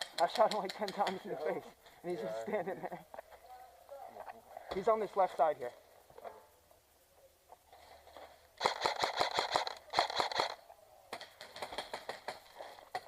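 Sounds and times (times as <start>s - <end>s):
airsoft guns firing: 8.6s - 13.0s.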